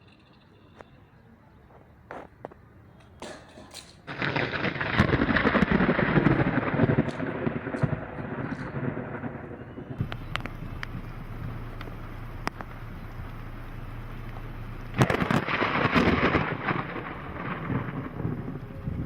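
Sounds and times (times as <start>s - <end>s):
thunderclap rumbling: 3.2s - 19.0s
faint clicks: 10.0s - 13.4s.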